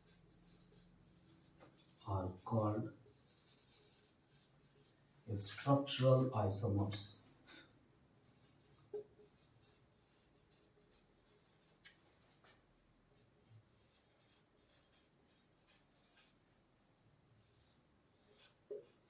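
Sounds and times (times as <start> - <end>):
handwriting scratching: 0.0 - 5.0, 8.2 - 12.6, 13.2 - 16.6, 17.4 - 19.0.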